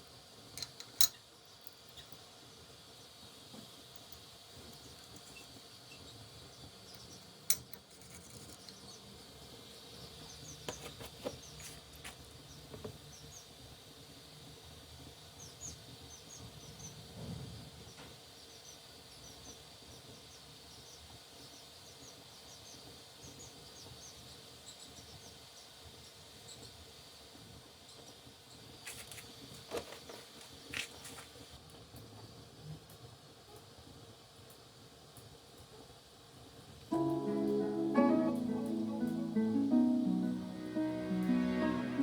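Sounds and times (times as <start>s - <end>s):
steady high hiss: 36.8s - 42.0s.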